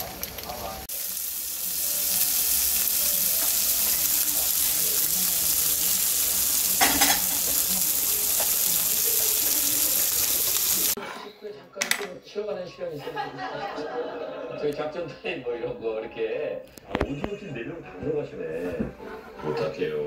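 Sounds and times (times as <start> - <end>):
ham sizzling in oil: 0.0 - 11.0.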